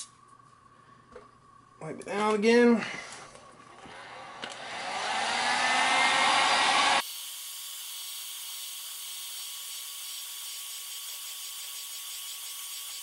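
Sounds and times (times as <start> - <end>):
heat gun blowing: 3.8 - 13.0.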